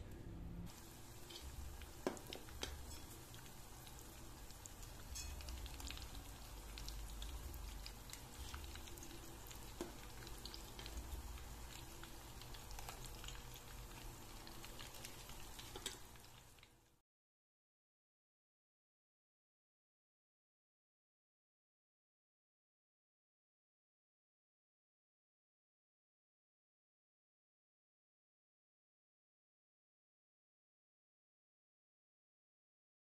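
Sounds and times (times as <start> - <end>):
batter deep-frying in oil: 0.7 - 17.0
small pops and crackles: 1.2 - 16.8.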